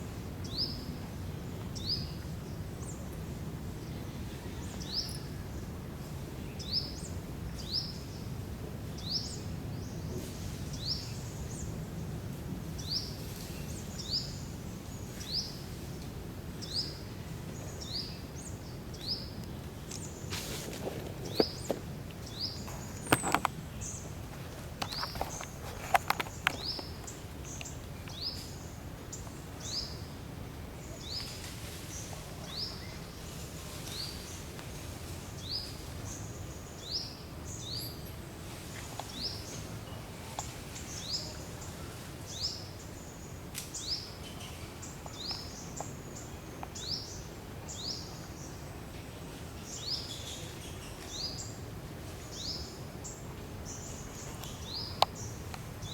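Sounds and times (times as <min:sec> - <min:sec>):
outdoor background hum: 0:00.0 - 0:55.9
bird chirping: 0:17.6 - 0:24.1.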